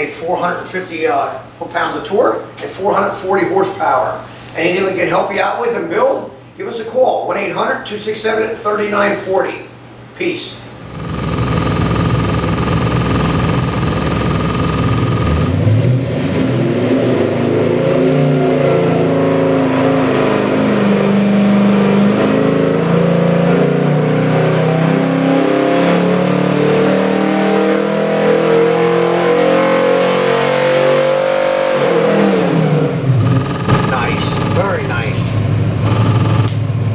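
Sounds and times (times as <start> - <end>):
engine revving on a dyno: 10.8 - 36.7.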